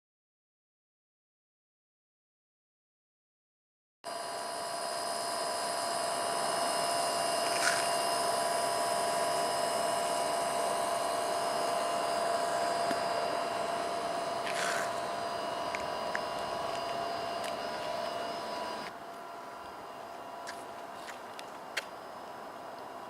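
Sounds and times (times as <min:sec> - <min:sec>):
small motor whine: 0:04.1 - 0:23.0
downward-sweeping chirps: 0:04.2 - 0:20.8.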